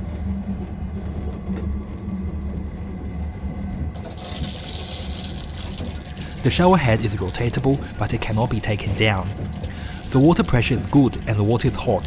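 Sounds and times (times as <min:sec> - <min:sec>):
train low rumble with rattles: 0:00.0 - 0:12.0
shower water spraying: 0:04.0 - 0:11.8.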